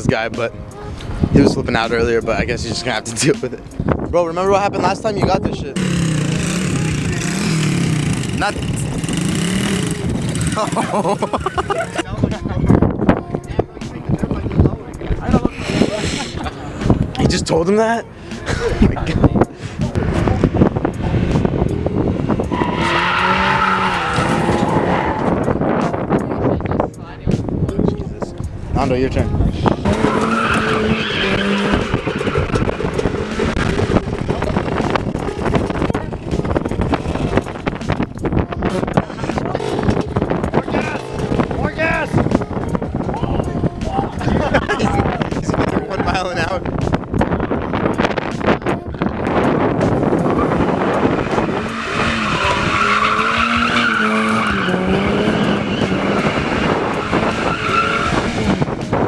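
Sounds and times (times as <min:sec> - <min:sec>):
car engine revving: 0:05.8 - 0:12.0, 0:19.8 - 0:26.2, 0:29.5 - 0:38.0, 0:49.3 - 0:59.0
tyre and engine rush: 0:05.8 - 0:12.2, 0:14.6 - 0:26.3, 0:28.5 - 0:59.0
tyres squealing: 0:29.9 - 0:32.8, 0:51.3 - 0:58.6.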